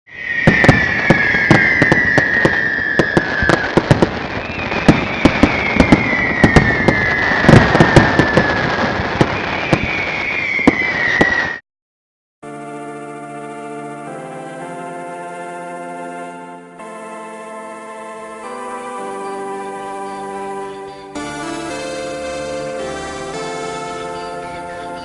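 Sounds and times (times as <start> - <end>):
falling whistling tones: 0.1 - 11.6
fireworks bangs and crackling: 0.1 - 11.6, 18.4 - 25.0.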